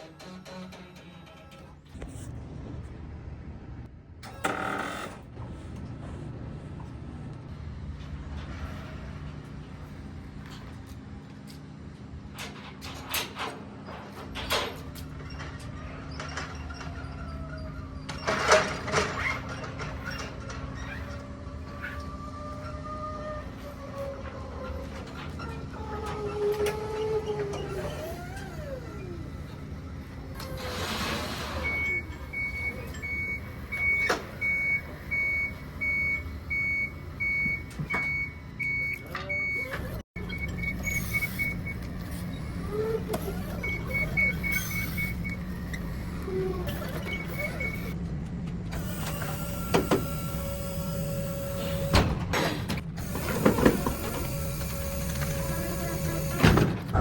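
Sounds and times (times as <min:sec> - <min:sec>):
truck reverse alarm beeping: 0:31.3 - 0:42.3, 0:43.0 - 0:46.0, 0:46.7 - 0:48.0.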